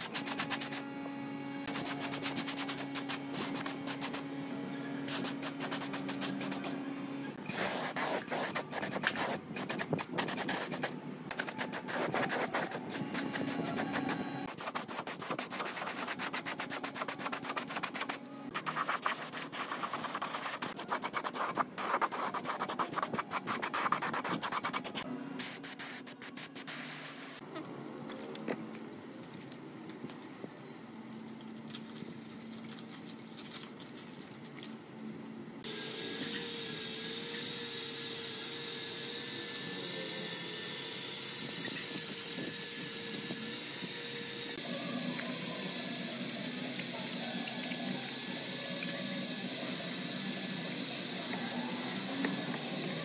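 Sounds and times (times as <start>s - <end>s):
sanding metal: 1.7s - 4.2s, 7.5s - 26.6s.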